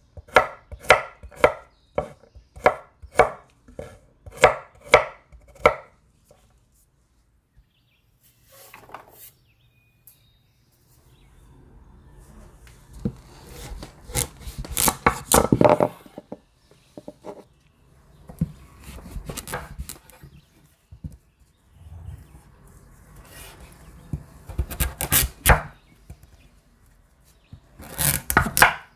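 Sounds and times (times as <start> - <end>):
knife chopping: 0.2 - 5.9, 13.5 - 15.9, 18.8 - 20.0, 27.8 - 28.9.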